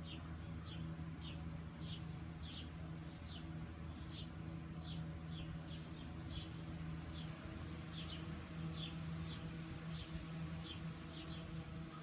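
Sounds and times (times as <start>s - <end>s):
small bird chirping: 0.0s - 12.0s
steady low hum: 0.0s - 12.0s.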